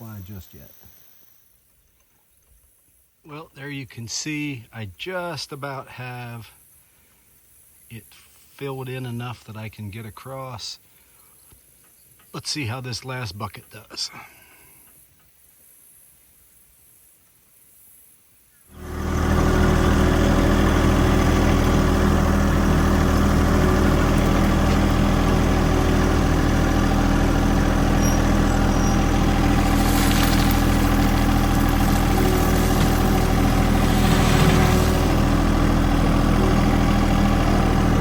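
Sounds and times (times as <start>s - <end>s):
tractor engine running: 18.7s - 38.0s.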